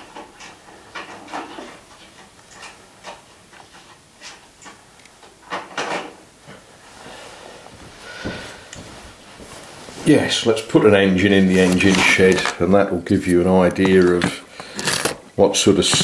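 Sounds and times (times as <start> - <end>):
small objects clicking and knocking: 11.5 - 12.6, 13.6 - 16.0.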